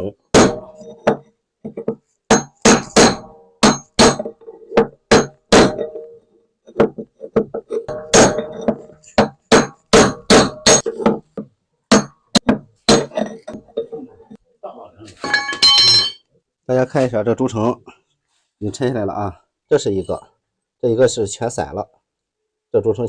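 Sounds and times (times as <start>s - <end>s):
hammer striking metal punch: 0.3s - 1.2s, 2.3s - 6.1s, 7.9s - 11.2s, 11.9s - 13.2s.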